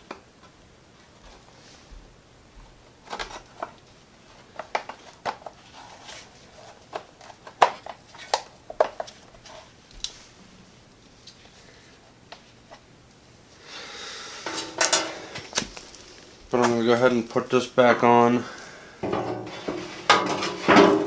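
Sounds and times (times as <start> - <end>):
metal tools clinking: 14.4 - 15.4.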